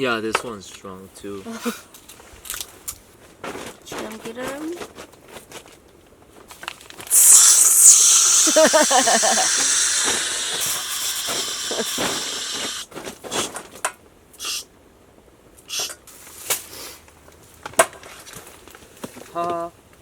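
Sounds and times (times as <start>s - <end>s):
food sizzling in a pan: 7.1s - 12.8s.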